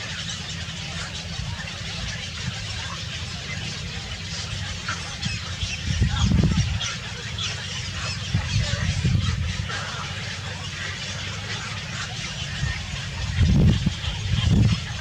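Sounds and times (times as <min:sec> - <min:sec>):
birds chirping: 0:00.0 - 0:15.0
low rumbling surges: 0:00.9 - 0:15.0.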